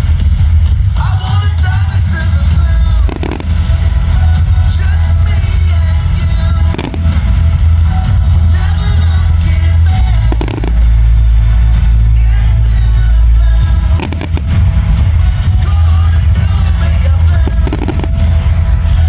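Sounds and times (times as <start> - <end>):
music with heavy bass over loudspeakers: 0.0 - 19.0
firework shells bursting: 3.0 - 3.7, 14.0 - 14.6.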